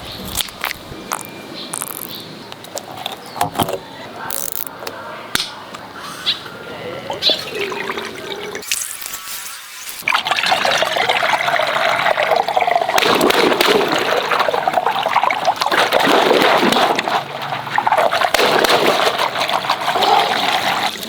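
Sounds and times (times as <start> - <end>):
water running: 7.0 - 21.0.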